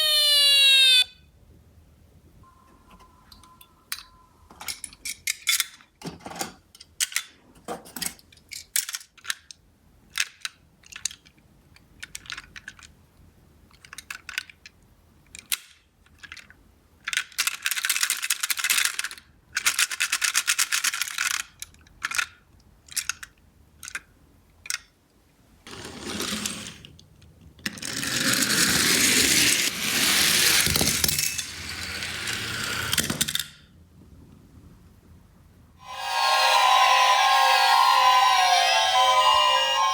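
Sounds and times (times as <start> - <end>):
toy cars clicking and clattering: 4.6 - 13.1, 13.7 - 25.0, 25.7 - 33.7
toy cars rolling on cardboard: 25.7 - 27.0, 27.6 - 33.6.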